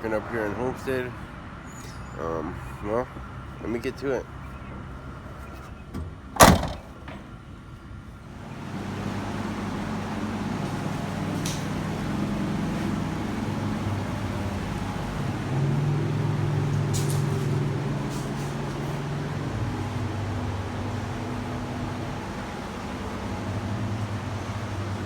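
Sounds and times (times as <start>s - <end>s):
engine running: 4.3s - 25.0s
door slamming: 5.9s - 7.3s.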